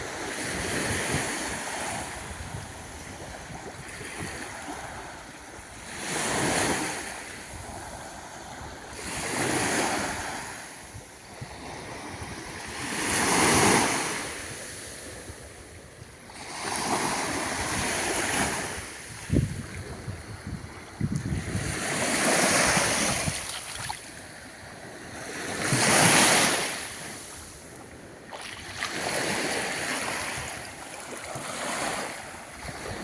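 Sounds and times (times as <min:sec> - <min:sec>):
wind rumbling on microphone: 0:00.0 - 0:05.8, 0:17.2 - 0:24.2
small waves washing onto beach: 0:00.0 - 0:33.0.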